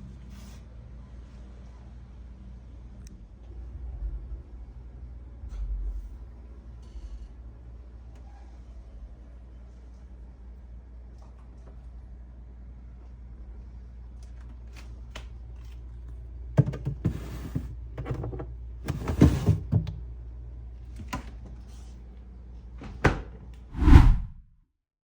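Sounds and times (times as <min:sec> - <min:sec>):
refrigerator hum: 0:16.0 - 0:21.4.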